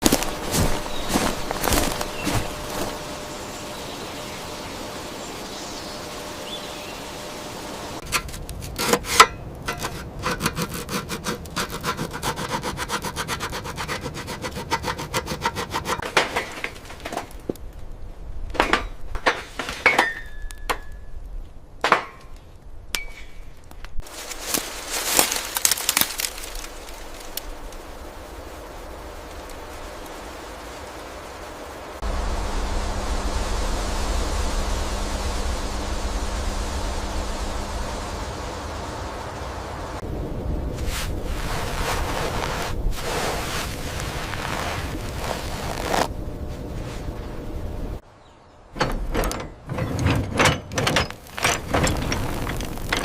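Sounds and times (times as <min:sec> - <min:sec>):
scraping and rubbing strokes: 0:00.0 - 0:03.2, 0:08.0 - 0:17.2, 0:40.8 - 0:47.3
steady hiss: 0:00.0 - 0:08.7, 0:24.0 - 0:48.1.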